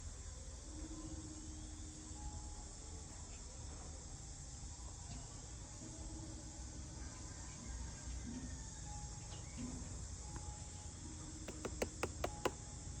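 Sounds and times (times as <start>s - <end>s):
insect chorus chirring: 11.5s - 12.5s.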